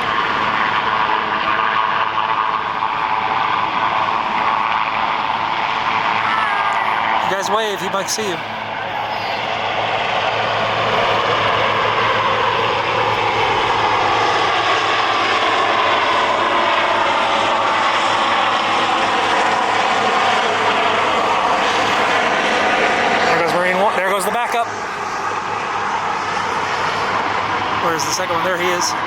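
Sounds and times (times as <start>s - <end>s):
helicopter flying overhead: 0.0s - 29.0s.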